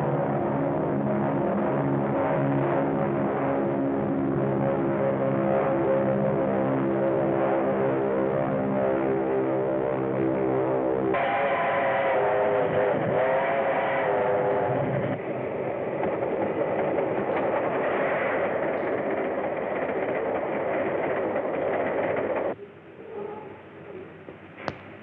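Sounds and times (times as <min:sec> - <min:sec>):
steam train rushing: 0:13.2 - 0:22.6.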